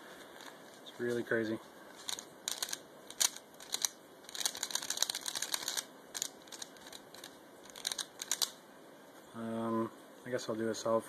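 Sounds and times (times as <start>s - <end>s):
plastic puzzle cube clicking: 2.0s - 8.6s.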